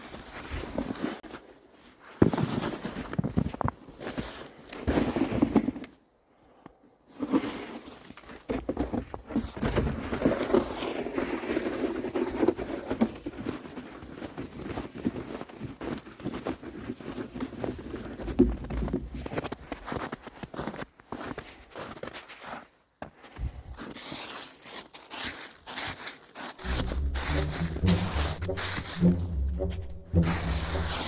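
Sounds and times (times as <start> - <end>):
snow crunching and scraping: 0.0 - 5.9, 7.1 - 8.5, 19.4 - 31.0.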